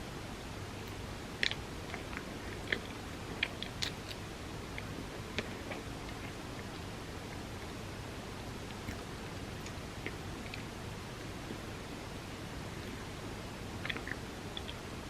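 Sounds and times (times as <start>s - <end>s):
steady low hiss: 0.0s - 15.0s
ice cream sandwich being chewed: 0.8s - 7.7s, 13.8s - 14.9s.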